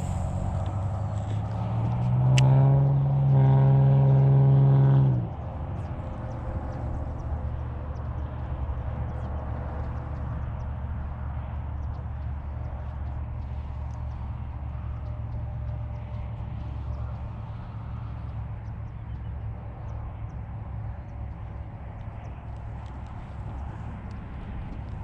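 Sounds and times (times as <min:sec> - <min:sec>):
engine revving and idling: 0:00.0 - 0:21.5
faint ticks: 0:11.4 - 0:20.4.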